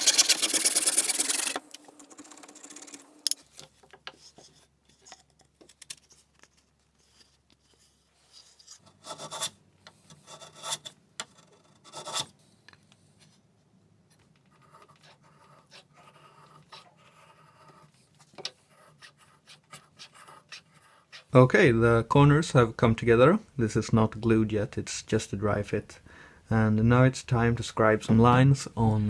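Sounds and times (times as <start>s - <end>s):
wood scraping strokes: 0.0s - 5.1s
wood rubbing: 0.0s - 9.5s, 14.2s - 21.4s.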